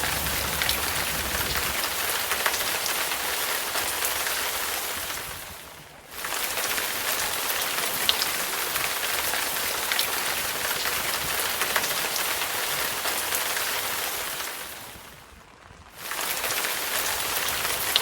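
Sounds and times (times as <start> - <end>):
raindrops ticking: 0.0 - 5.2
steady rain falling: 0.0 - 18.0.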